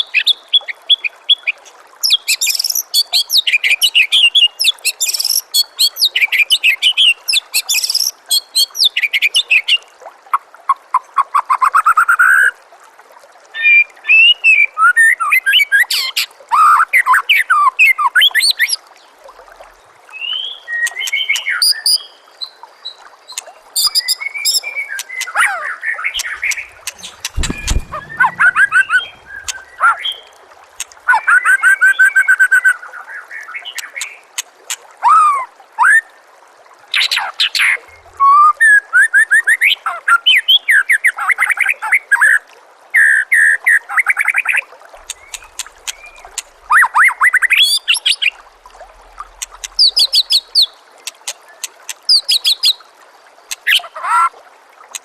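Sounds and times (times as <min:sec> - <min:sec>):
trickle of running water: 0:00.0 - 0:55.0
songbird singing: 0:23.3 - 0:30.3, 0:45.1 - 0:48.4, 0:49.2 - 0:50.8.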